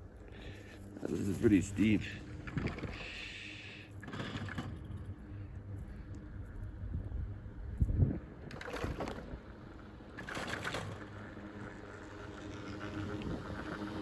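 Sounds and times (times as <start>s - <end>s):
wind buffeting microphone: 6.7s - 9.6s.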